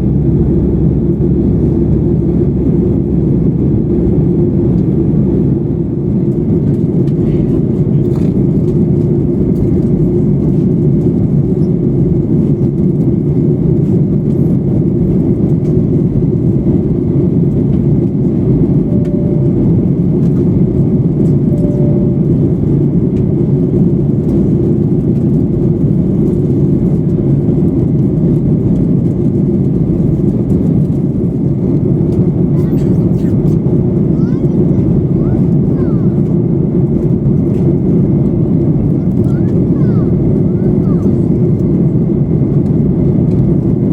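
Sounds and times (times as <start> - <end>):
airflow and engine noise in cabin: 0.0 - 43.9
faint short tones: 21.5 - 22.4.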